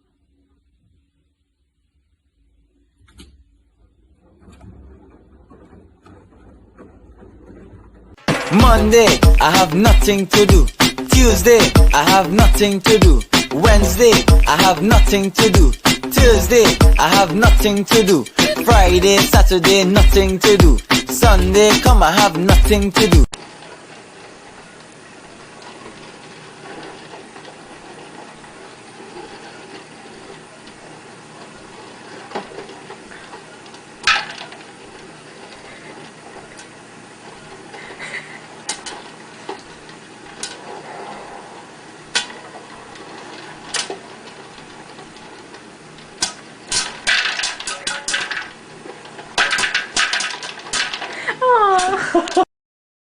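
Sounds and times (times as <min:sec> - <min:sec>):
small hard objects clattering: 0:46.2 - 0:51.3.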